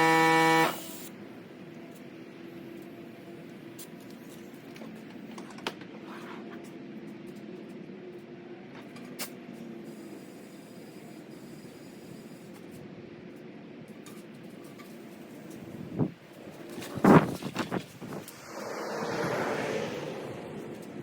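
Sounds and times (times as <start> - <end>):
air compressor running: 0.0 - 1.1.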